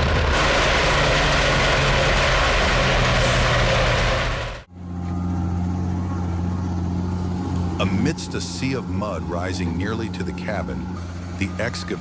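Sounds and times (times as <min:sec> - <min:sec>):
wood chipper rushing: 0:00.0 - 0:04.7
diesel tractor engine running: 0:00.0 - 0:12.0.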